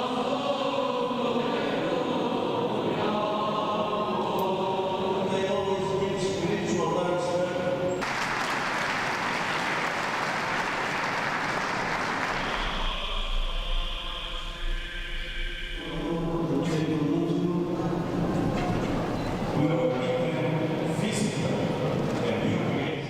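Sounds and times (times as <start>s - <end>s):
choir chanting: 0.0s - 7.9s, 11.6s - 22.8s
crowd applauding: 8.0s - 13.0s.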